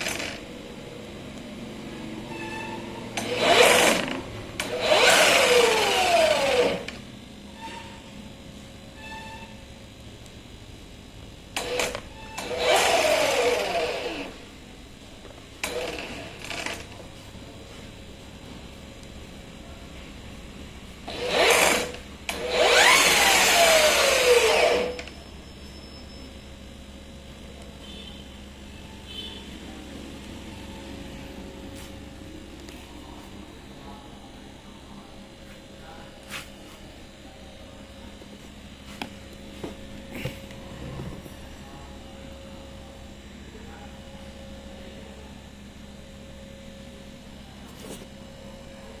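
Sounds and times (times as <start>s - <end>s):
electrical hum: 0.0s - 49.0s
grass trimmer motor whine: 3.2s - 7.0s, 11.6s - 14.4s, 21.1s - 25.1s.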